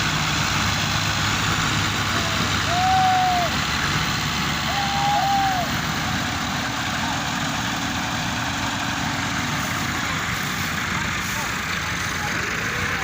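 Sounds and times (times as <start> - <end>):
tractor engines running: 0.0 - 13.0.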